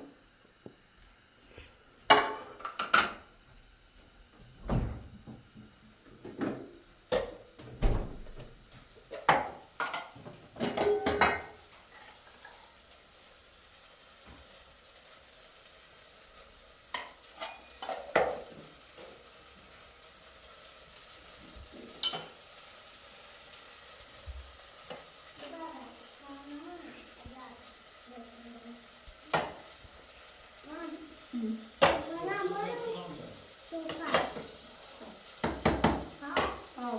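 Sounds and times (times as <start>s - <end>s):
food sizzling in a pan: 0.0s - 36.9s
metal utensils clinking on pan: 9.1s - 11.6s, 16.9s - 19.1s, 21.8s - 22.4s, 33.8s - 36.8s.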